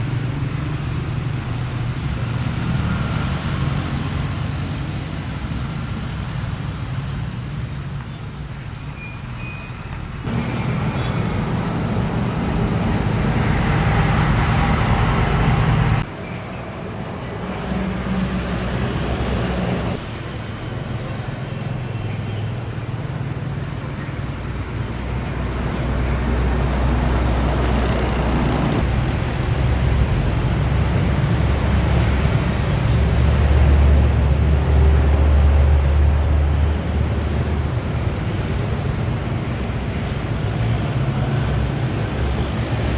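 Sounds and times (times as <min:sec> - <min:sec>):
tyre and traffic noise: 0:00.0 - 0:42.9
heavy trucks driving by: 0:09.9 - 0:42.9.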